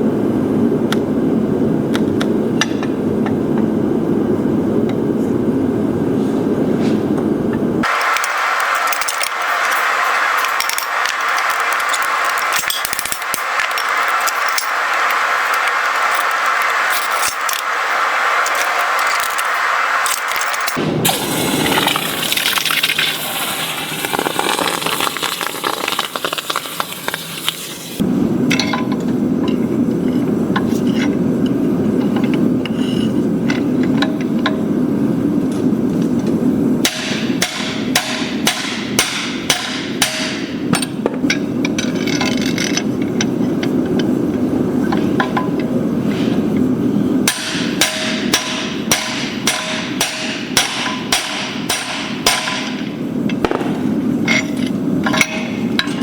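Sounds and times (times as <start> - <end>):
low rushing noise: 7.8 - 24.0
loud hiss: 7.8 - 28.0
hammer ringing on anvil: 47.3 - 52.8.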